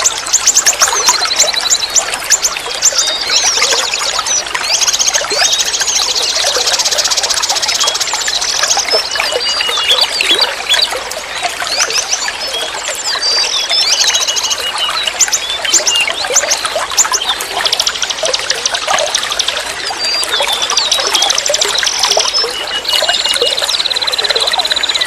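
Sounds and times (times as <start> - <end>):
forest stream flowing: 0.0 - 25.0
songbirds chirping and whistling: 0.0 - 25.0.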